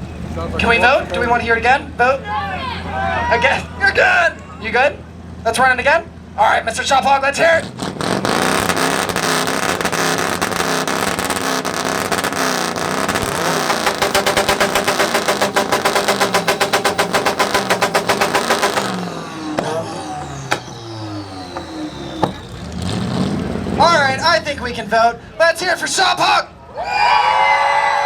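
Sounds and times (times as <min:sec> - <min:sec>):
exhaust pops: 0:00.0 - 0:02.1, 0:06.7 - 0:24.9
vehicle exhaust revving: 0:00.0 - 0:25.9
engine stuttering at rev limiter: 0:00.0 - 0:26.2.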